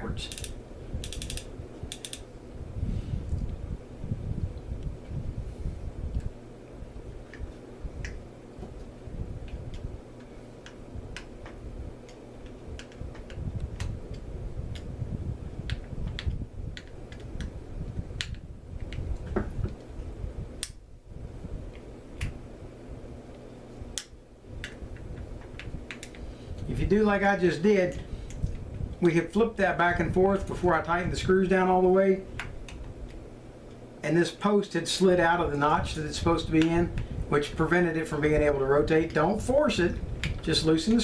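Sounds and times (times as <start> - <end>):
steady low hum: 0.0 - 41.0
fishing reel parts clicking: 0.3 - 2.2.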